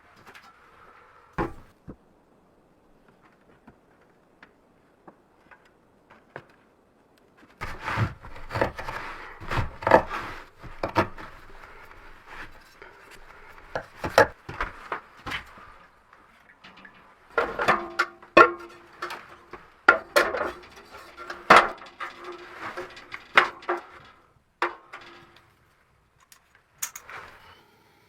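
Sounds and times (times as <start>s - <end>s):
hard objects knocking and clattering: 7.6s - 25.4s.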